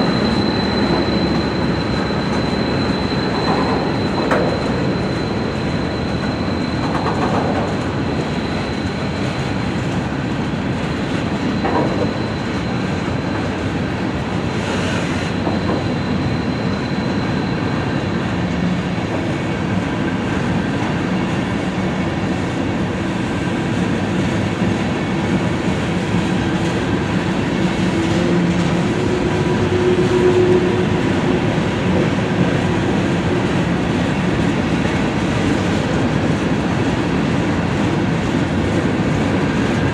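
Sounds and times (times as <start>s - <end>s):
high wheel squeal: 0.0s - 9.4s, 11.3s - 13.6s, 14.5s - 18.6s, 26.5s - 34.2s
train wheels on rails: 0.0s - 39.9s.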